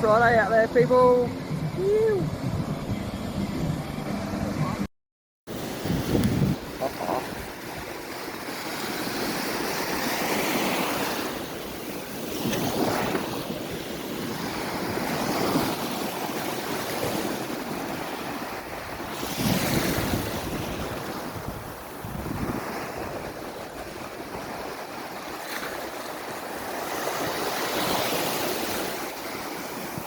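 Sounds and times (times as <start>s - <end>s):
wind buffeting microphone: 0.0s - 4.8s, 5.6s - 8.0s, 12.4s - 25.3s
ocean surf breaking: 0.0s - 4.9s, 5.5s - 30.0s.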